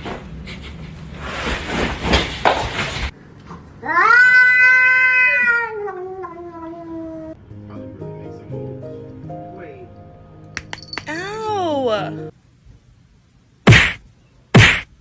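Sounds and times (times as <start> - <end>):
cat yowling: 3.8 - 7.4.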